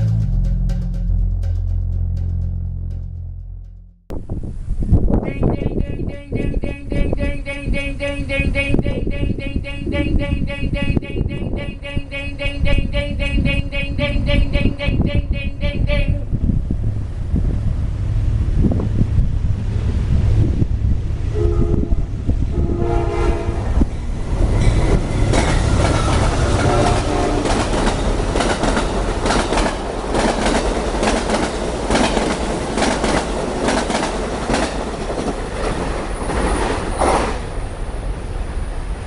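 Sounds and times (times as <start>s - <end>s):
train passing with heavy rumble: 0.0s - 39.0s
train horn chord: 21.3s - 23.9s, 26.4s - 27.6s.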